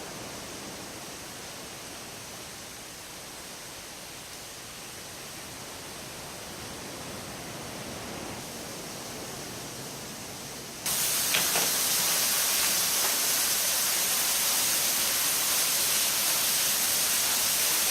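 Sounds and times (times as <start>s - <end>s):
waterfall pouring: 10.9s - 17.9s.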